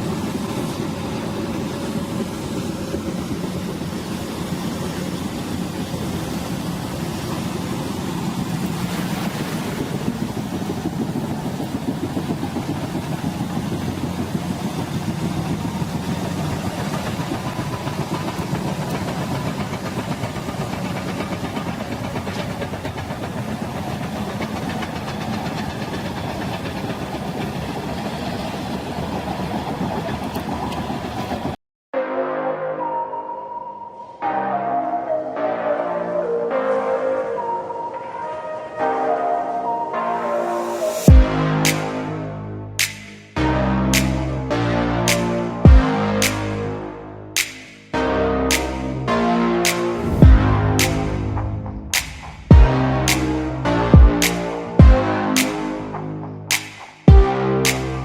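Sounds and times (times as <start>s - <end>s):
engine running: 0.0s - 28.2s, 40.6s - 58.0s
constant low drone: 39.2s - 58.0s
dense rumbling noise: 49.9s - 54.2s.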